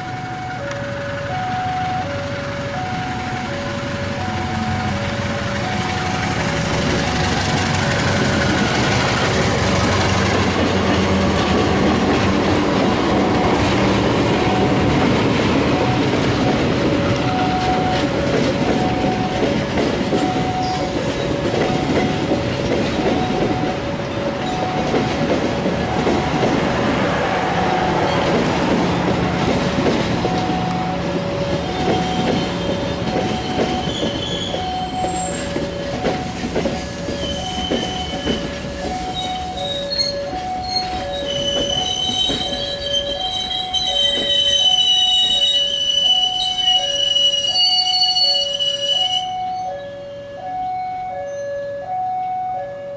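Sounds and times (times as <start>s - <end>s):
train wheels clattering: 4.9s - 49.1s
two-note beep: 17.2s - 18.1s, 33.1s - 46.9s
train wheels squealing: 17.2s - 23.8s, 31.4s - 50.0s, 50.6s - 51.7s.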